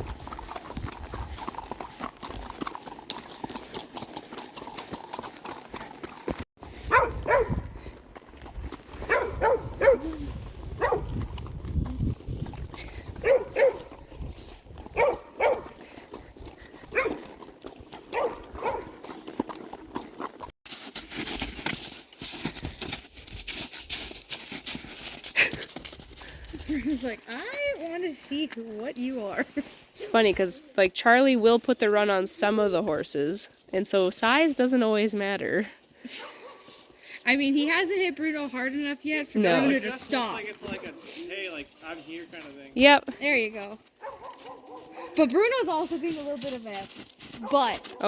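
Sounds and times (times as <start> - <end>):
horse hoofbeats clip-clop: 0.0 - 48.0
dog barking: 6.9 - 7.6, 9.0 - 10.1, 10.8 - 11.1, 13.2 - 14.0, 14.9 - 15.8, 16.9 - 17.2, 18.1 - 19.0, 40.6 - 41.0, 44.0 - 45.2, 47.4 - 48.0.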